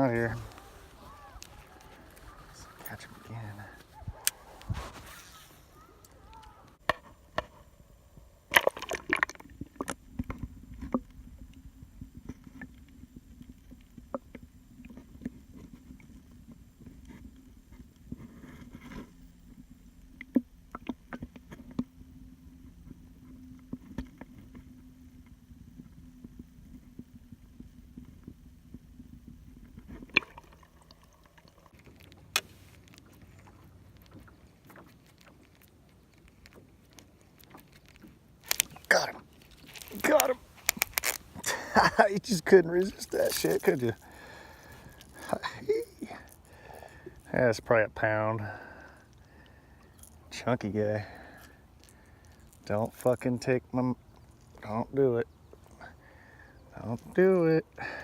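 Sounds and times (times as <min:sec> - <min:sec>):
water sloshing against boat: 0:00.0 - 0:07.0, 0:08.5 - 0:48.0
fishing gear clicking and rattling: 0:00.0 - 0:07.7, 0:08.5 - 0:14.0, 0:29.3 - 0:47.6, 0:48.2 - 0:54.8
low steady hum: 0:00.0 - 0:58.0.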